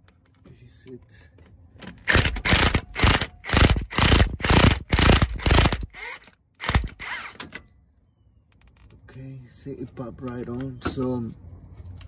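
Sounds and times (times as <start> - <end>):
impact wrench bursts: 2.1 - 7.5.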